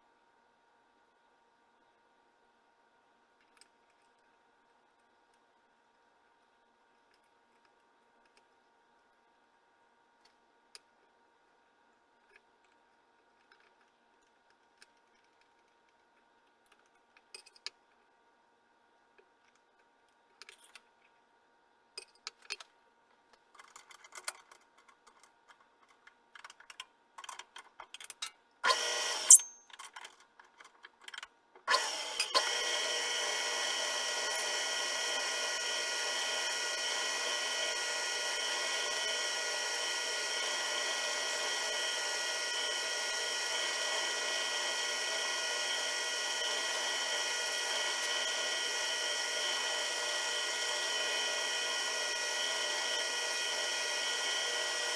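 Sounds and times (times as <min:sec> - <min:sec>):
power tool motor whining: 0:28.6 - 0:29.5, 0:31.7 - 0:54.9.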